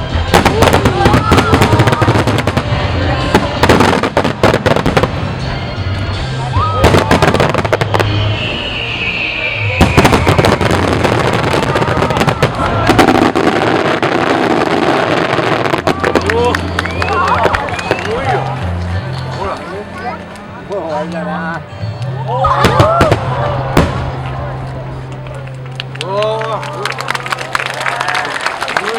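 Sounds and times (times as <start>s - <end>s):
fireworks crackle: 0.1s - 5.5s, 6.8s - 20.5s
falling firework whistle: 6.6s - 13.2s.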